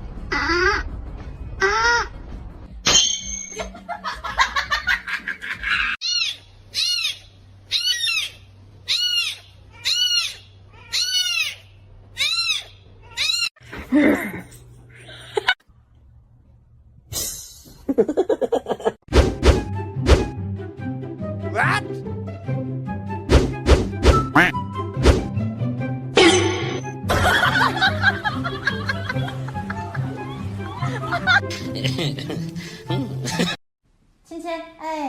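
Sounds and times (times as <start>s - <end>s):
animal high-pitched calls: 6.0s - 13.6s.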